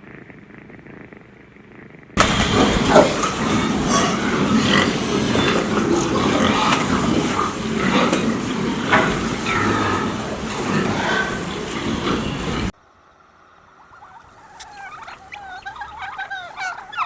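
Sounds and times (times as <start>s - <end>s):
cat purring: 0.0s - 12.7s
noisy background: 2.2s - 12.7s
animals calling: 2.2s - 17.0s.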